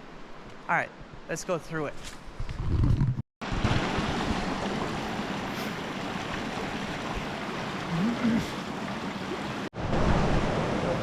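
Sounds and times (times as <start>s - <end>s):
creek water flowing: 3.4s - 11.0s.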